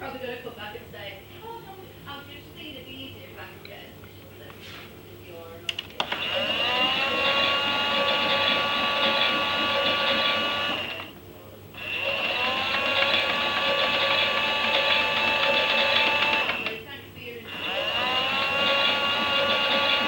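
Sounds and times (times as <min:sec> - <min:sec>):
small electric motor whining: 0:06.0 - 0:11.2, 0:11.8 - 0:16.8, 0:17.5 - 0:20.0.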